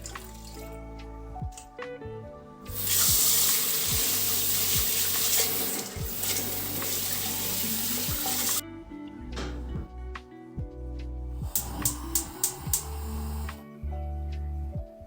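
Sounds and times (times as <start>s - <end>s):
soft background music: 0.0s - 15.0s
running water rushing: 2.7s - 8.6s.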